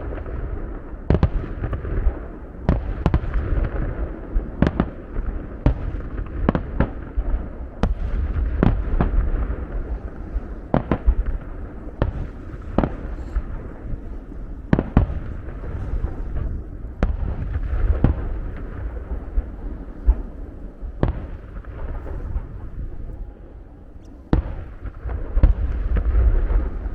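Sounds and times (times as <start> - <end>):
fireworks bangs: 0.0 - 26.9
low rumble of launches: 0.0 - 26.9.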